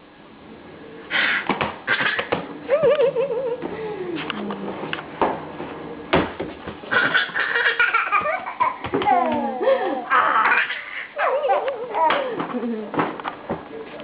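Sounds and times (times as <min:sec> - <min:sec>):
young child laughing: 0:01.9 - 0:03.8, 0:06.9 - 0:13.0.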